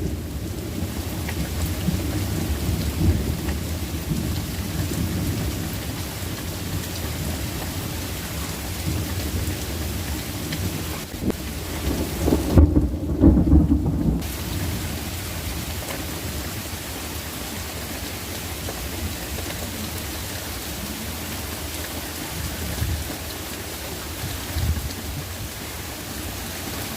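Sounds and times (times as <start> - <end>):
thunder rumble: 0.0 - 16.8
steady rain falling: 0.0 - 26.9.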